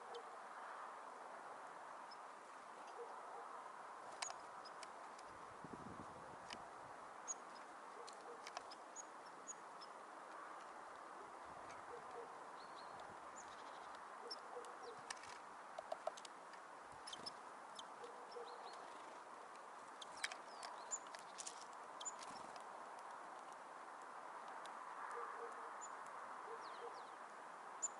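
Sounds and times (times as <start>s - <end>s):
small birds calling and chirping: 4.1s - 5.4s, 7.2s - 16.3s, 17.0s - 22.8s, 24.6s - 27.9s.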